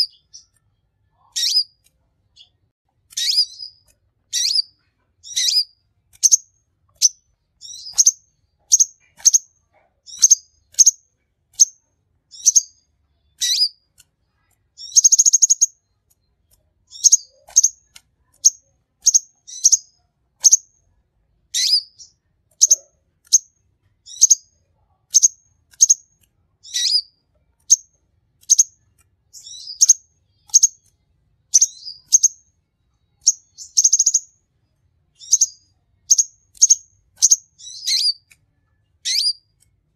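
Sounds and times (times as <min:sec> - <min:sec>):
sunbird chirping: 0:01.2 - 0:01.8, 0:03.1 - 0:09.5, 0:11.6 - 0:13.8, 0:14.8 - 0:16.0, 0:26.6 - 0:27.1, 0:31.5 - 0:32.5, 0:33.1 - 0:34.4, 0:35.1 - 0:38.3, 0:39.0 - 0:39.4.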